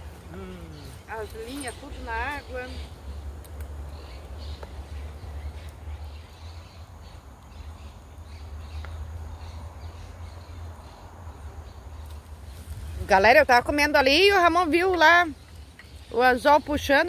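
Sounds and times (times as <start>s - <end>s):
faint bird calls: 0.3s - 3.0s.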